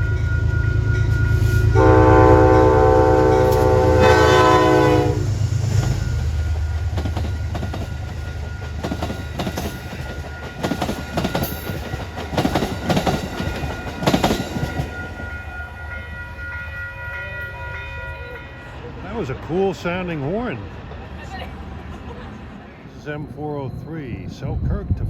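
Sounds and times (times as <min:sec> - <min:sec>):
train horn: 0:00.0 - 0:05.4
train wheels clacking over rail joints: 0:06.6 - 0:15.4.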